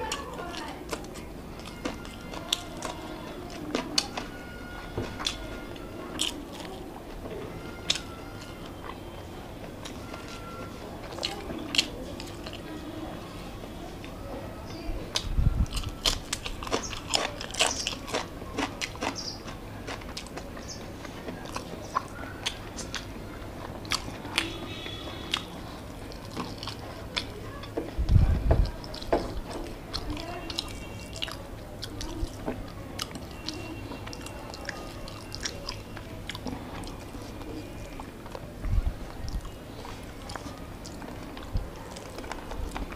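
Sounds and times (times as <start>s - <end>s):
crunchy bites and chewing: 0.0s - 6.8s, 9.7s - 12.7s, 15.1s - 38.5s.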